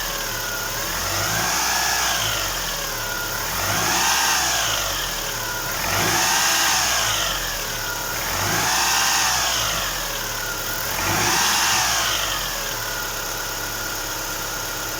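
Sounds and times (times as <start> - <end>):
car engine revving: 0.8 - 10.2, 10.8 - 12.6.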